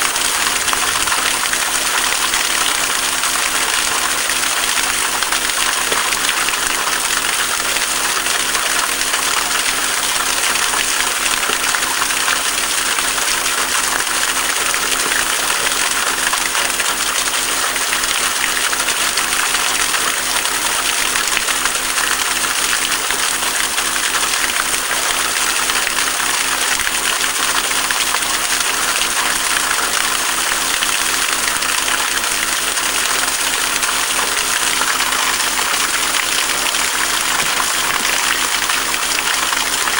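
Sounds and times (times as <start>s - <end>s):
stream water rushing: 0.0s - 17.1s, 23.8s - 39.9s.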